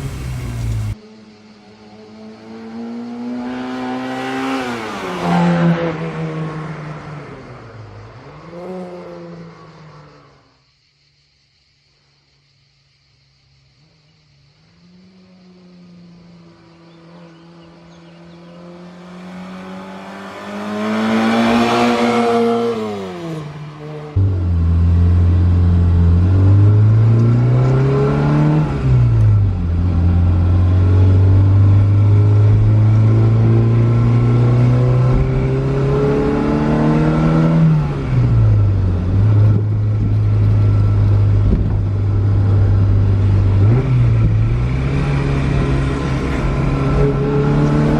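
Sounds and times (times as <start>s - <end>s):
car engine revving: 0.0s - 1.0s, 15.6s - 47.9s
car passing by: 0.0s - 1.0s, 16.9s - 24.2s.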